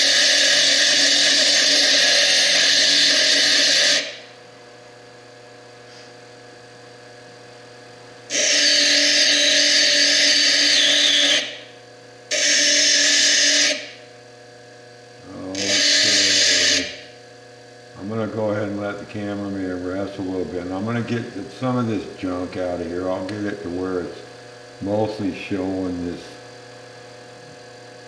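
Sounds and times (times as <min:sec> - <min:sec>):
disc grinding stone: 0:00.0 - 0:04.2, 0:08.3 - 0:11.6, 0:15.5 - 0:17.1.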